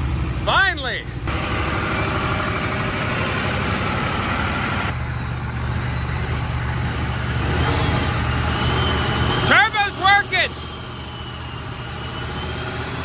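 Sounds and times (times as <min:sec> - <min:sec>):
diesel engine running: 0:00.0 - 0:13.0
faint turbo whistle: 0:05.0 - 0:13.0.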